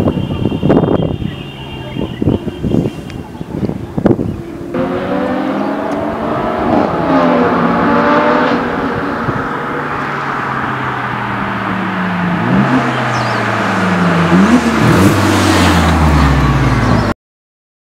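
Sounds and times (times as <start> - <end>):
car engine revving: 4.4 - 17.1.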